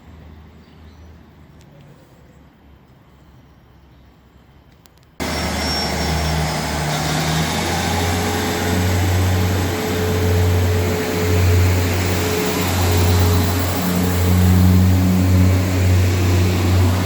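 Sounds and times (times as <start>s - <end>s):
low engine drone: 5.2s - 17.0s
train rushing past: 5.2s - 17.0s.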